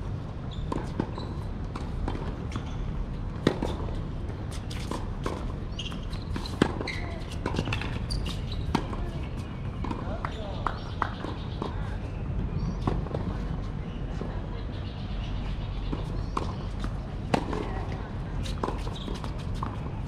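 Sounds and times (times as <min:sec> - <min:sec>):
outdoor background hum: 0:00.0 - 0:20.0
tennis ball bouncing on court: 0:00.5 - 0:11.7, 0:15.9 - 0:20.0
tennis ball hit by rackets: 0:15.9 - 0:19.9.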